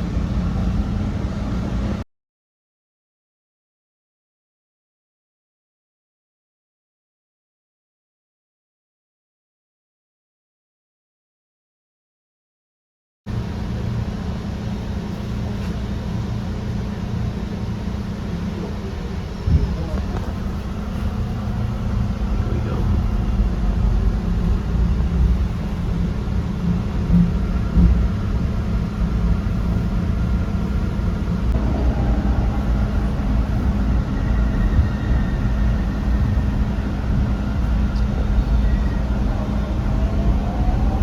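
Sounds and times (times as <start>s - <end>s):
subway wheels rumbling on rail: 0.0s - 2.0s, 13.3s - 41.0s
faint whine: 13.4s - 41.0s
rising tone: 31.6s - 41.0s.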